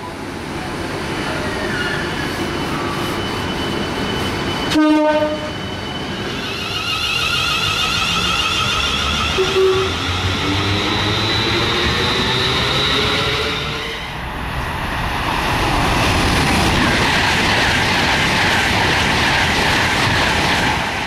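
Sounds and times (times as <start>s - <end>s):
electric train rumble: 0.0s - 21.0s
train passing: 0.0s - 21.0s
train horn blast: 4.7s - 5.6s, 9.4s - 10.1s.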